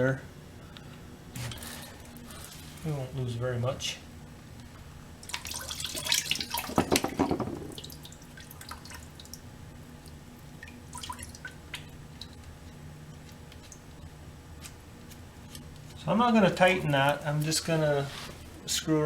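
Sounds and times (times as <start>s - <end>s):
coolant splattering: 5.2s - 12.5s
liquid dripping: 5.2s - 14.1s.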